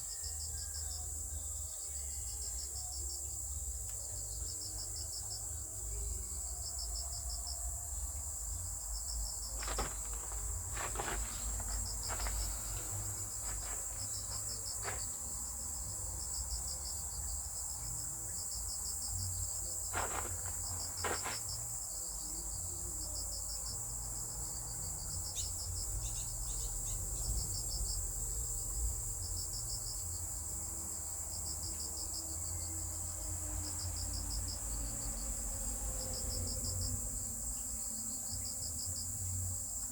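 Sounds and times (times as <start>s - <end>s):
high insect trill: 0.0s - 39.9s
insects pulsed chirps: 25.0s - 28.1s.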